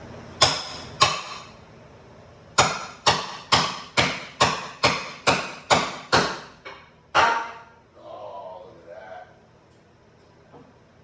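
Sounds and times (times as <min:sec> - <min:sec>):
hammer striking metal: 0:00.4 - 0:01.5, 0:02.6 - 0:07.8.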